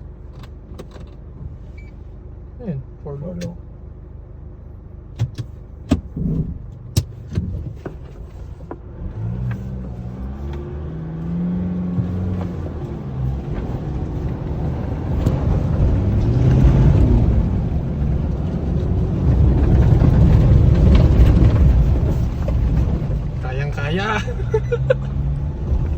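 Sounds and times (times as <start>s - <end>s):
rushing rumble: 6.0s - 25.9s
pickup engine pulling under load: 6.1s - 25.9s.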